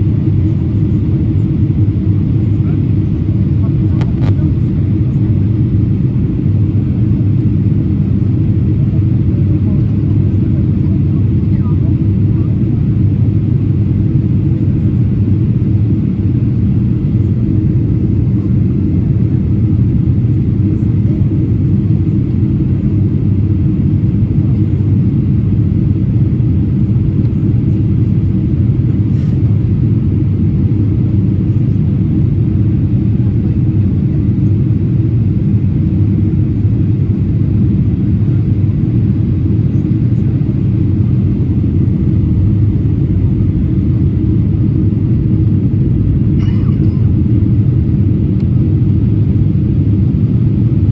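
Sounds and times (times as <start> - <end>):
airplane cabin engine rumble: 0.0 - 50.9.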